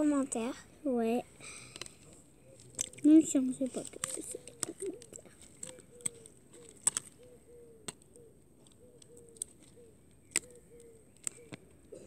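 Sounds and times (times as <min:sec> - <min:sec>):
bird cooing: 0:02.4 - 0:12.0
plastic straws clicking in tub: 0:03.7 - 0:07.2.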